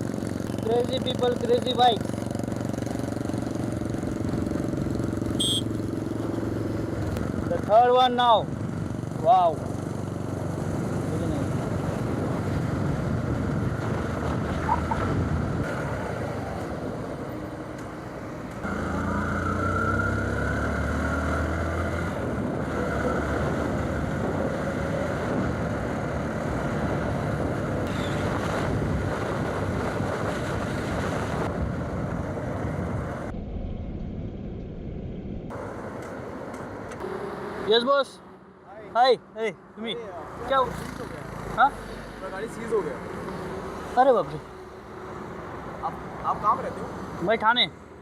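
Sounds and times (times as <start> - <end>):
motorcycle engine running: 0.0 - 11.6
wind and road noise: 0.0 - 48.0.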